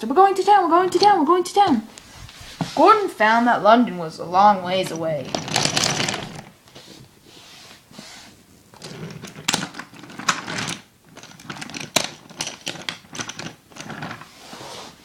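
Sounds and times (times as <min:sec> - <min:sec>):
toy pieces clicking and clattering: 0:04.8 - 0:06.5, 0:08.8 - 0:14.2.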